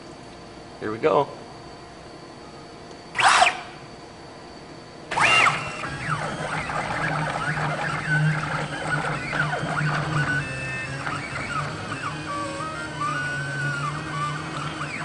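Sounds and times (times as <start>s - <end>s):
steady low hum: 0.0s - 15.0s
machine motors whining: 3.1s - 3.9s, 5.1s - 15.0s.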